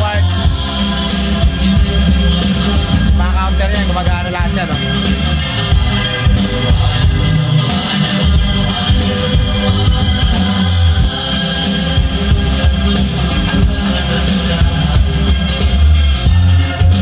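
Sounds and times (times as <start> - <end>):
pop music with vocals: 0.0 - 17.0.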